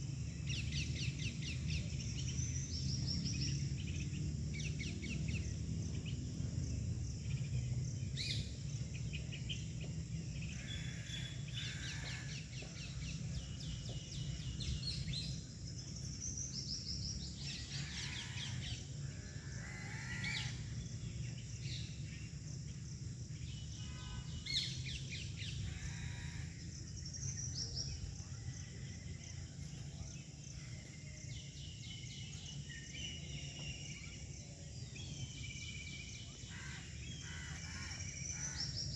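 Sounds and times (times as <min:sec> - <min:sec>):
birds chirping and trilling: 0:00.0 - 0:38.9
low background rumble: 0:00.0 - 0:38.9.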